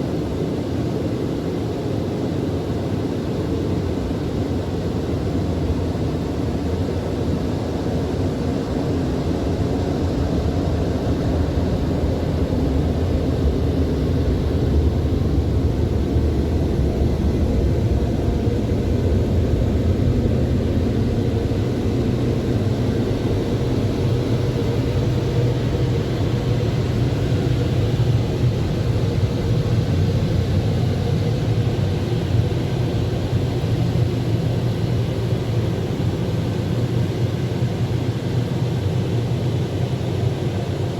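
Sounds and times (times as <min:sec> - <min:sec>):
car wash rushing and rumbling: 0:08.8 - 0:35.8.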